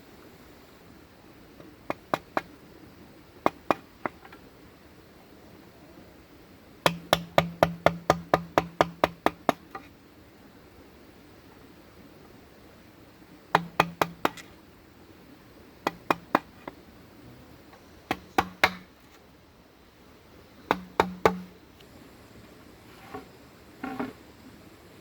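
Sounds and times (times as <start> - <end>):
tool knocking on bamboo: 1.9 - 2.5, 3.4 - 4.4, 6.8 - 9.9, 13.5 - 14.5, 15.8 - 16.8, 18.1 - 18.9, 20.7 - 21.6.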